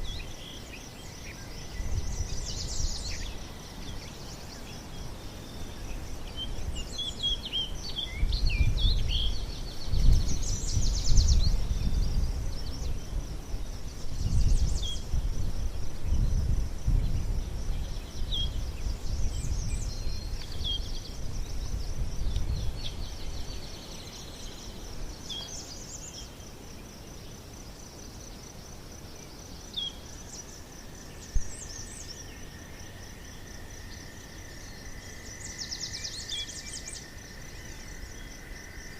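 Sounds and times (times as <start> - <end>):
small birds chirping: 0.0 - 15.2
insect trill: 0.0 - 38.9.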